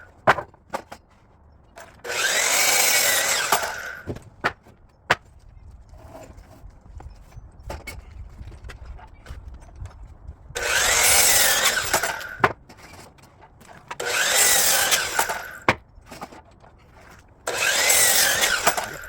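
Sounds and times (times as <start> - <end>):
miter saw cutting wood: 2.0 - 4.1, 10.6 - 12.4, 14.0 - 15.8, 17.5 - 19.0.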